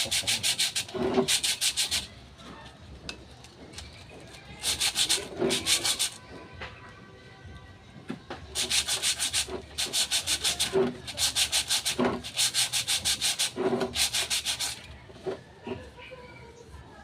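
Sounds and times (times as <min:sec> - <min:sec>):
sandpaper scraping metal: 0:00.0 - 0:02.1, 0:04.6 - 0:06.2, 0:08.6 - 0:14.8.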